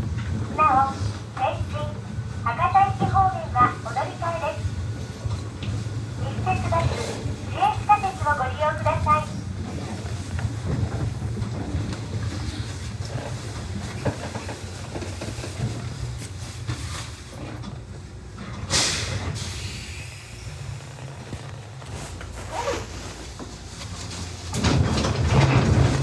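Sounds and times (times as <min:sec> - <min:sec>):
electric train rumbling on rails: 0:00.0 - 0:26.0
loud hiss of air: 0:18.7 - 0:20.4.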